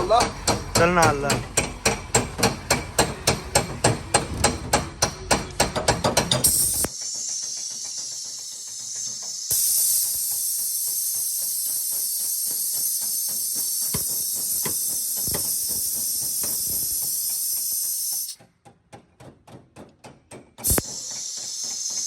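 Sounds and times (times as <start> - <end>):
knocks: 0.1 - 6.5
air tool hissing: 6.2 - 18.4, 20.6 - 22.0.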